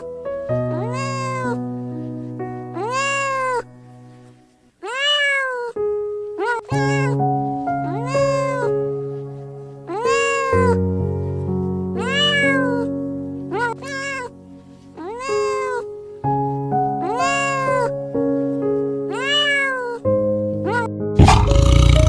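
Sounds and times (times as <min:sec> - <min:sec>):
animal calling: 0:00.7 - 0:01.6, 0:02.8 - 0:03.7, 0:06.4 - 0:07.2, 0:07.8 - 0:08.8, 0:09.9 - 0:10.8, 0:12.0 - 0:12.9, 0:13.5 - 0:14.3, 0:15.0 - 0:15.9, 0:17.0 - 0:18.0, 0:20.6 - 0:22.0
background music with sustained chords: 0:03.6 - 0:04.6, 0:07.2 - 0:13.7, 0:14.3 - 0:19.2.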